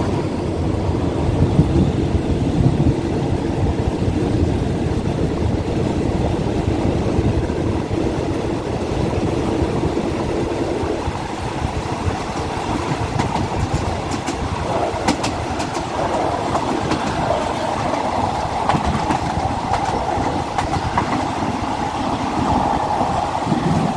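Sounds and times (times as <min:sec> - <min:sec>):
train wheel and rail rumble: 0:00.0 - 0:23.9
wheels clicking over rail joints: 0:09.8 - 0:23.9.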